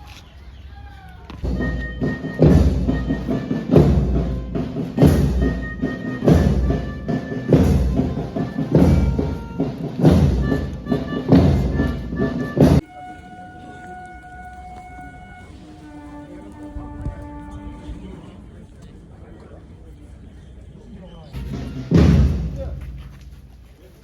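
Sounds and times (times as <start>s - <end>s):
heavy drum beat: 1.4s - 12.8s, 21.4s - 23.6s
march music: 1.4s - 18.3s, 21.4s - 23.8s.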